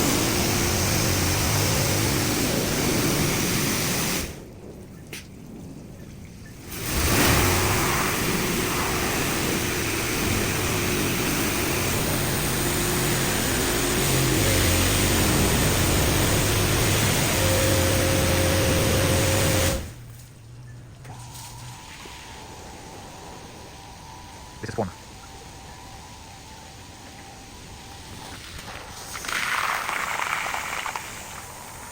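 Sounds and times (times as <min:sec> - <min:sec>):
high-pressure water jets hissing: 0:00.0 - 0:04.4, 0:06.6 - 0:20.1, 0:21.1 - 0:31.9
pump humming: 0:00.0 - 0:04.4, 0:06.7 - 0:20.2.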